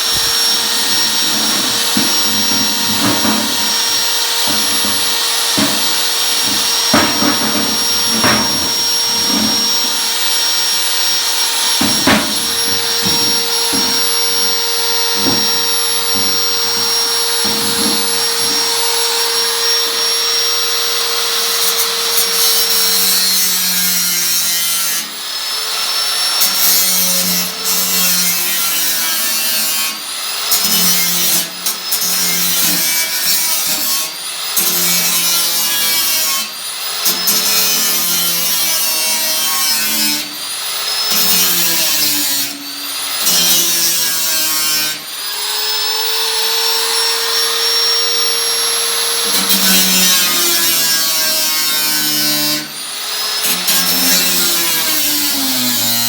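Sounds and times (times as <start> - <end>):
rasping strokes on sheet metal: 0.0 - 20.0
power tool whining on metal: 0.0 - 56.0.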